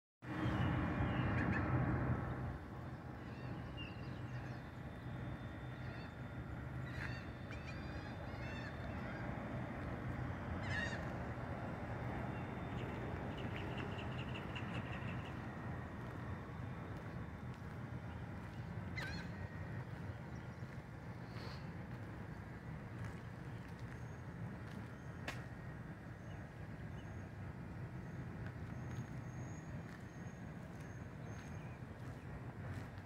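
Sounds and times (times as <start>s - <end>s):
steady low hum: 0.3s - 33.0s
bird calls: 18.5s - 21.7s.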